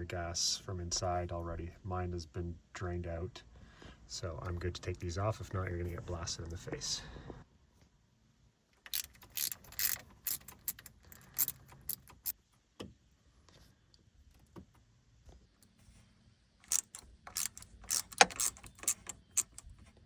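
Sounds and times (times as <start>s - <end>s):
ratchet wrench clicking: 8.8s - 12.4s, 16.6s - 19.7s.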